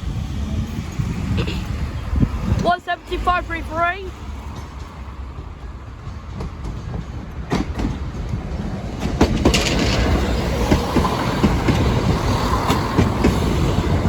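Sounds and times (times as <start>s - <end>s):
diesel train rumbling: 0.0s - 14.0s
train wheels clickety-clack: 4.1s - 14.0s.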